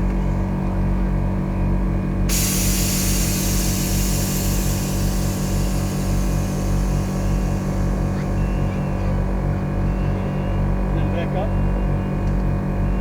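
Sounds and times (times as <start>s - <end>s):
air suspension hissing: 2.3s - 9.8s
low rumble: 2.8s - 10.7s.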